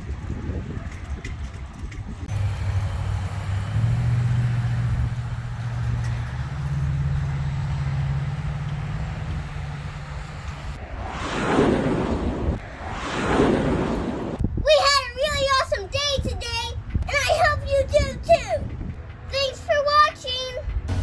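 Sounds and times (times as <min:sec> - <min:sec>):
vehicle engine humming: 0:00.8 - 0:10.8, 0:16.7 - 0:21.0.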